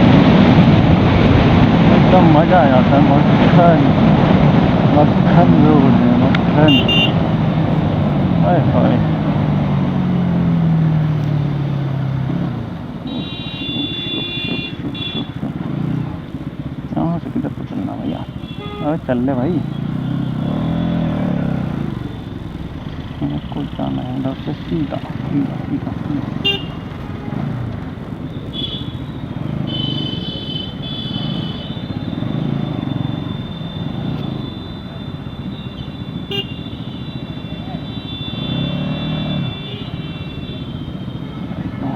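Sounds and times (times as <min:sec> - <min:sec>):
motorcycle engine easing off: 0:00.0 - 0:12.8, 0:19.3 - 0:30.2, 0:31.1 - 0:35.1, 0:38.2 - 0:39.6
wind and road noise: 0:00.0 - 0:41.9
vehicle horn blasts: 0:06.6 - 0:07.3, 0:13.0 - 0:15.4, 0:18.1 - 0:19.0, 0:26.4 - 0:27.4, 0:28.5 - 0:41.9.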